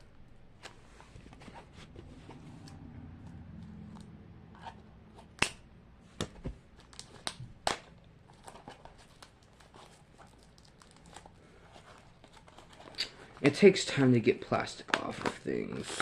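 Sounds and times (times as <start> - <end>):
plastic wrapping crinkling: 6.8 - 13.5.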